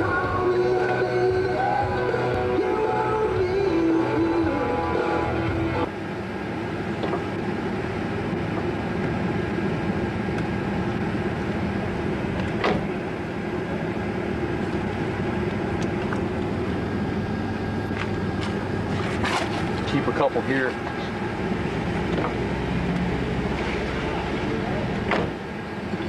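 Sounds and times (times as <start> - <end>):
rock music on car radio: 0.0 - 5.9
car engine and road noise: 0.0 - 26.0.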